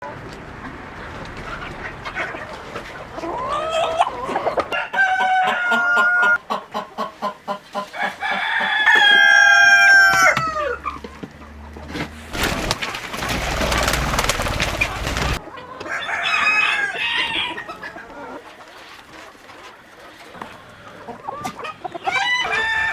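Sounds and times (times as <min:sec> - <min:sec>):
hens clucking: 0:00.0 - 0:22.9
rooster crowing: 0:03.3 - 0:06.4, 0:07.9 - 0:11.0, 0:15.8 - 0:17.8, 0:21.9 - 0:22.9
rustling noise: 0:11.8 - 0:15.4.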